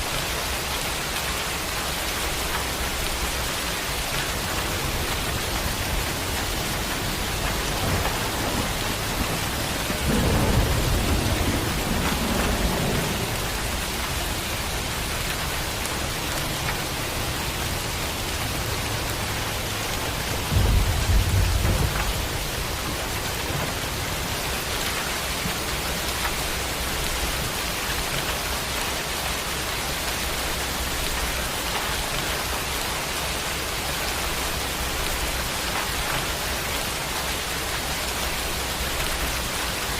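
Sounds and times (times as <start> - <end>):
heavy rain: 0.0 - 39.9
thunder rumbling: 4.0 - 28.8.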